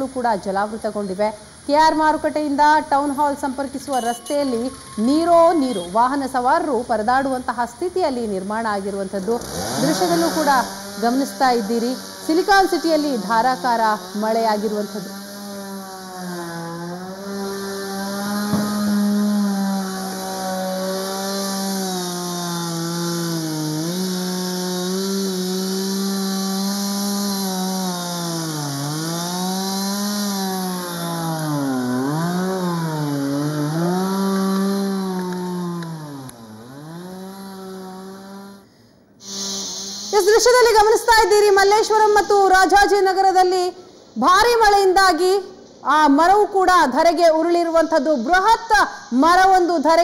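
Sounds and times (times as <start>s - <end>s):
chainsaw cutting wood: 8.0s - 44.0s.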